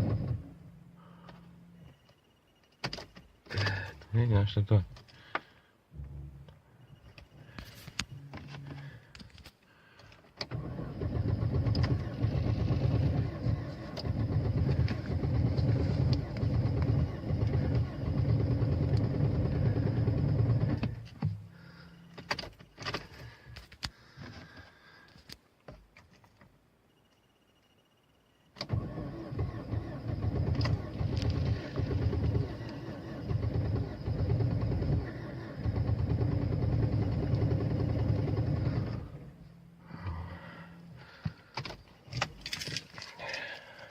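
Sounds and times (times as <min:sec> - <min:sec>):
car engine cranking on starter: 0:00.0 - 0:01.5, 0:03.0 - 0:05.5, 0:10.0 - 0:23.5, 0:28.5 - 0:43.9.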